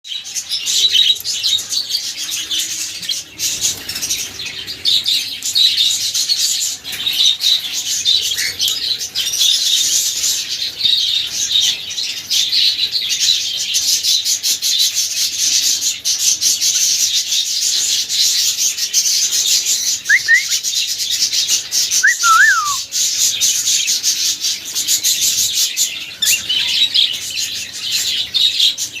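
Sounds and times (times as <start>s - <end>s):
cockatiel chirping: 20.1s - 20.5s, 22.0s - 22.8s
bird whistled notes: 20.1s - 20.6s, 22.0s - 22.9s.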